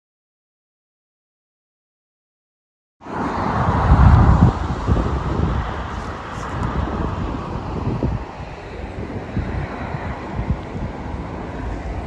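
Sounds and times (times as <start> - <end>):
outdoor background noise: 3.0 - 12.0
wind rumbling on microphone: 3.0 - 12.0.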